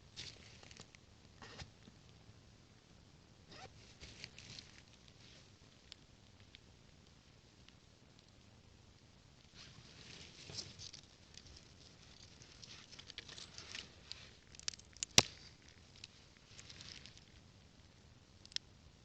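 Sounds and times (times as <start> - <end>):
twigs crackling in campfire: 0.0 - 2.2, 3.8 - 18.8
sharp twig snap: 14.6 - 15.5.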